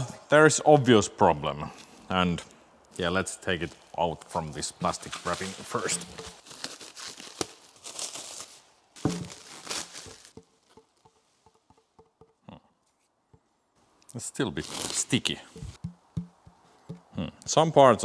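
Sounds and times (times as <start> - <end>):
plastic wrapping crinkling and tearing: 3.5 - 10.8, 14.5 - 15.2
faint taps and handling: 9.0 - 13.5, 15.5 - 17.6.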